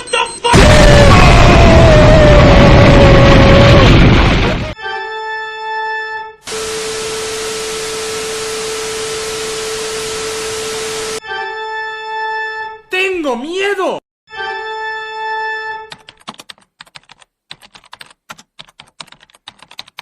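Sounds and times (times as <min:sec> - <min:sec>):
loud noisy blast: 0:00.5 - 0:04.8, 0:06.5 - 0:11.2
organ-like electronic tone: 0:06.5 - 0:11.2
static hiss: 0:06.5 - 0:11.2.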